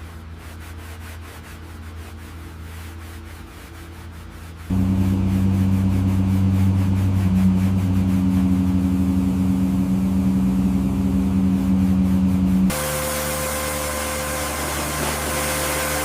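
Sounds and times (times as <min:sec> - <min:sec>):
extractor motor humming: 0:04.7 - 0:16.0.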